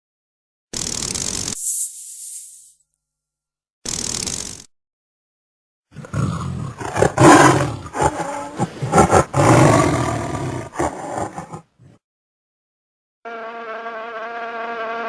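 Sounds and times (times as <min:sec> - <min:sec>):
large animal roaring: 0:05.9 - 0:12.0.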